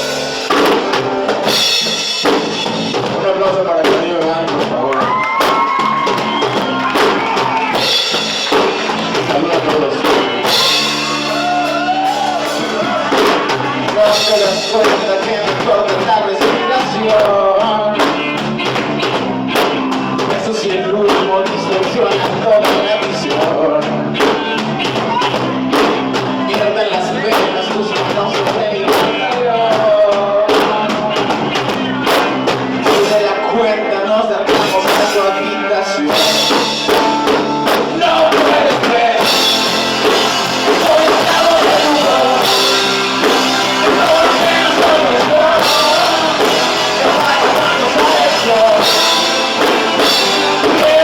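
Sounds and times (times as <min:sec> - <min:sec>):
drum kit beat: 0:00.0 - 0:33.4, 0:34.5 - 0:51.0
bass: 0:00.0 - 0:51.0
live band playing latin pop: 0:00.0 - 0:51.0
person singing: 0:09.1 - 0:18.2, 0:32.8 - 0:51.0.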